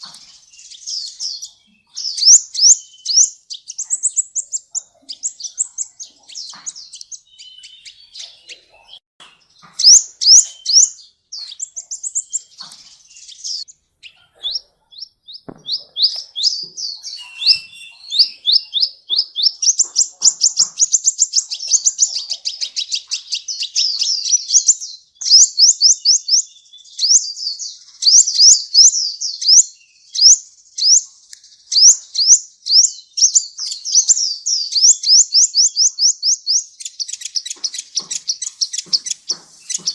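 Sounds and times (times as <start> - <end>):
sunbird singing: 0.0 - 39.9.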